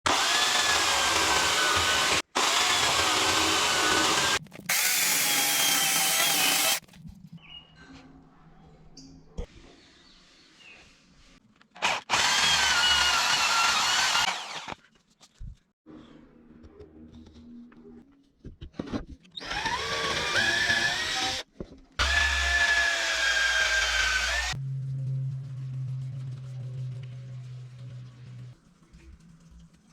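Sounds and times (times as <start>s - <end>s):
electric drill whining: 0.1s - 6.8s, 11.8s - 14.8s, 19.4s - 21.4s, 22.0s - 24.6s
power saw cutting wood: 0.1s - 6.8s, 11.8s - 14.8s, 19.4s - 21.4s, 22.0s - 24.6s.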